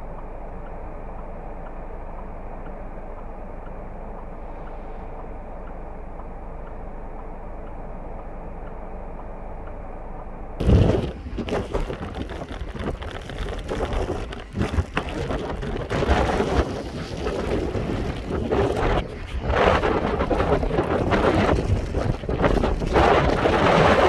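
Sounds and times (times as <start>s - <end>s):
muffled low rumble: 0.7s - 24.0s
blizzard wind gusting on microphone: 10.6s - 24.0s.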